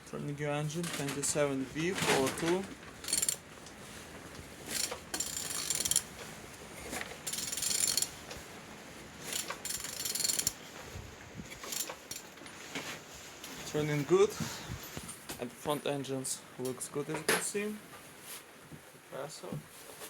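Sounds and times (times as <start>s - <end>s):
ratchet wrench clicking: 3.0s - 3.4s, 4.7s - 6.1s, 7.3s - 8.2s, 9.2s - 10.6s, 11.5s - 12.3s.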